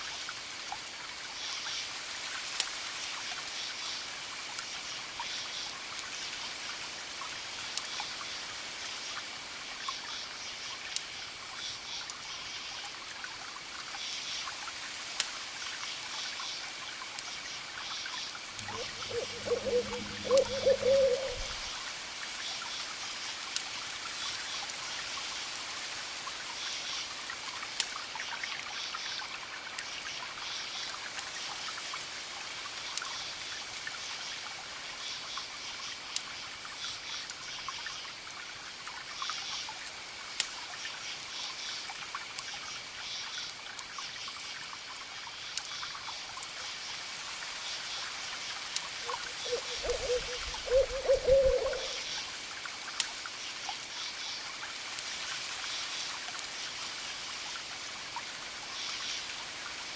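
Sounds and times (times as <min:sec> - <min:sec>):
campfire crackling and popping: 0:05.5 - 0:20.6, 0:21.2 - 0:25.3, 0:26.2 - 0:30.0, 0:30.8 - 0:47.8, 0:51.8 - 0:58.4
crickets chirping: 0:17.3 - 0:21.8, 0:49.0 - 0:52.3.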